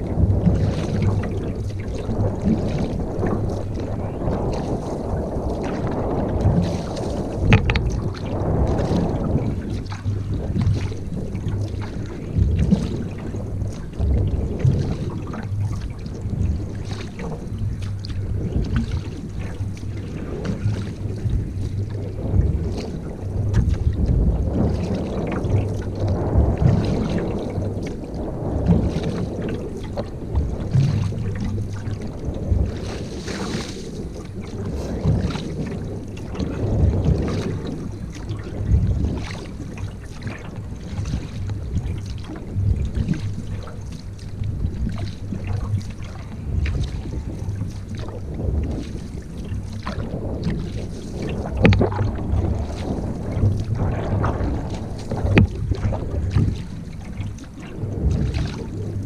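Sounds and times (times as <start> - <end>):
paddle splashing water: 0.0 - 59.0
wind buffeting microphone: 0.0 - 59.0
small knocks: 7.5 - 7.9.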